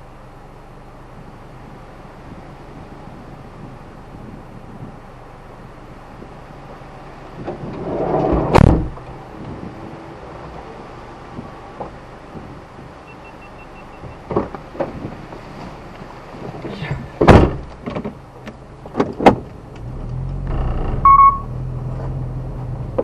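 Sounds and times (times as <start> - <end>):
car engine starting and running: 0.0 - 23.0
knocks and thuds: 8.4 - 9.0, 14.3 - 15.1, 17.2 - 18.2
short electronic beep: 13.1 - 14.2, 21.0 - 21.5.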